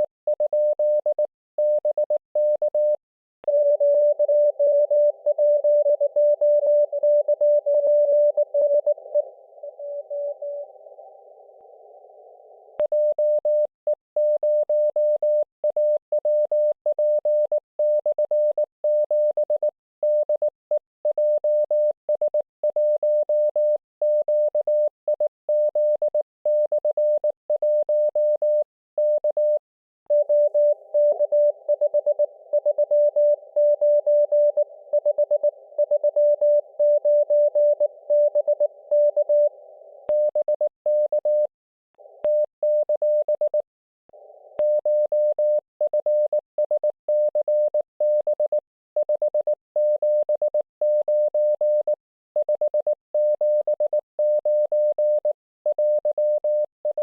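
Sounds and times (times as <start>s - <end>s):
morse code tone: 28.2s - 39.5s, 40.1s - 41.5s.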